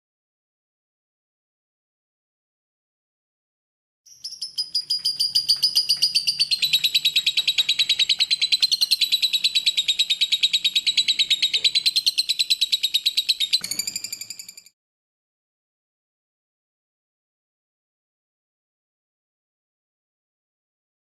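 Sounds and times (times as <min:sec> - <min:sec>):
lovebird chattering trill: 0:04.1 - 0:14.7.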